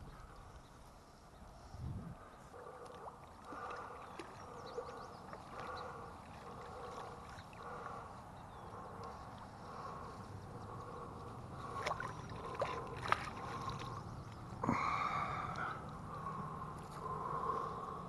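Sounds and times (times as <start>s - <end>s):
river water gurgling and lapping: 0.0s - 18.0s
faint ticks: 8.9s - 9.4s.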